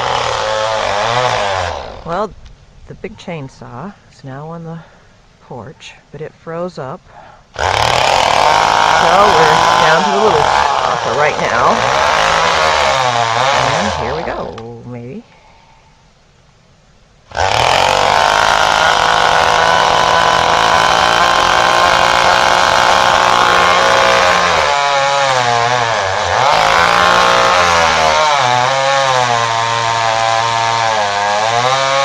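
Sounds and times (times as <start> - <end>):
chainsaw cutting tree trunk: 0.0 - 2.1, 7.6 - 14.7, 17.3 - 32.0.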